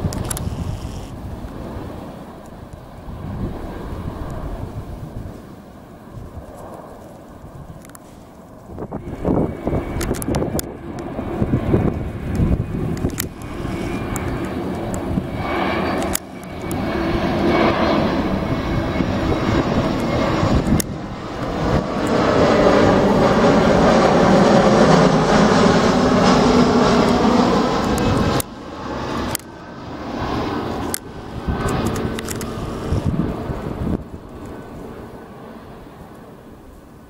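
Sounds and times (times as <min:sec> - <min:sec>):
airliner engines roaring: 0:00.0 - 0:37.0.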